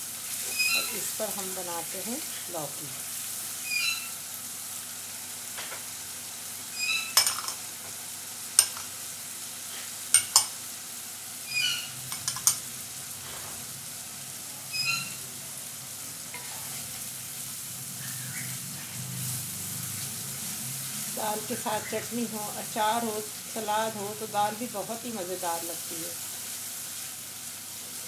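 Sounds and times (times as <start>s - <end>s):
masala sizzling in hot oil: 0.0s - 28.0s
short high squeaks: 3.6s - 4.2s, 6.7s - 7.2s, 11.5s - 12.0s, 14.7s - 15.2s.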